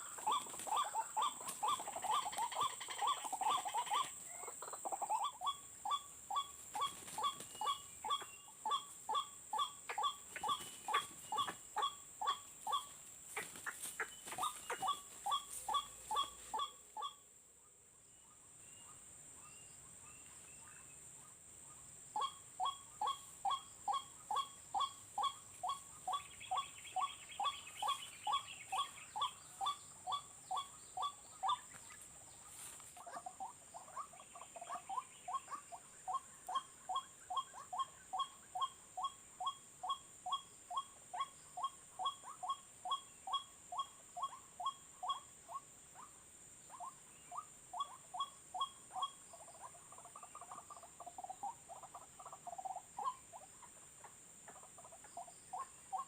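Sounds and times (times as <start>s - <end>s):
waterhen calling repeated notes: 0.0s - 17.2s.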